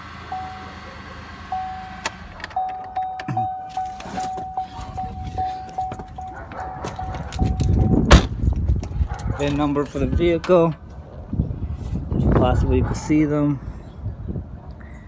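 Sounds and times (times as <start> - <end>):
car warning chime dings: 0.2 - 8.3.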